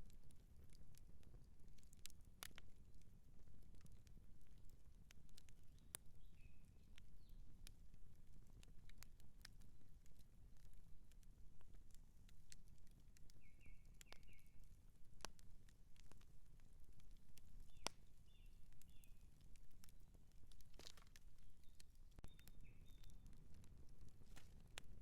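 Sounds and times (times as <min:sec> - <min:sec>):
campfire crackling and popping: 0:00.0 - 0:25.0
bird chirping: 0:13.4 - 0:14.6, 0:21.6 - 0:23.3.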